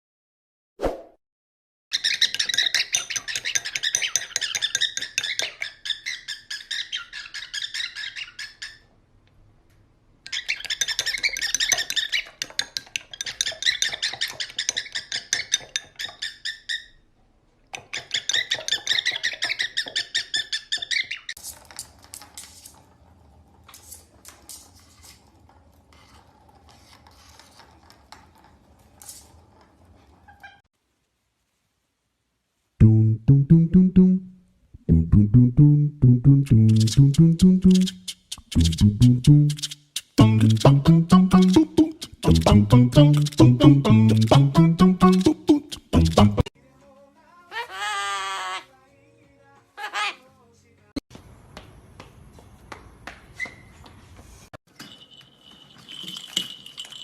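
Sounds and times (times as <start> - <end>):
parrot chirping: 1.9 - 8.9, 10.3 - 17.1, 17.7 - 21.4, 36.5 - 46.4.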